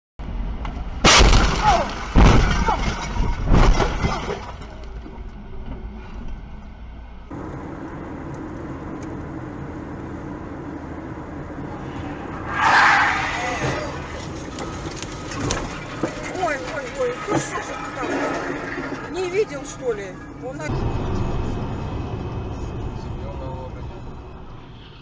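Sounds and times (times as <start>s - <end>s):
vehicle running noise: 0.2s - 1.3s, 4.1s - 25.0s
car crash impacts: 1.0s - 5.0s, 11.8s - 19.6s
crunching metal: 1.0s - 5.1s, 11.8s - 20.7s.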